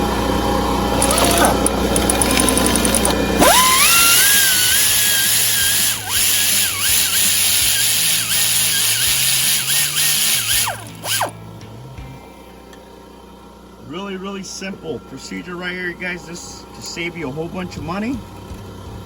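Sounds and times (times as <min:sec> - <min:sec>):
power tool motor whine: 0:00.0 - 0:11.4.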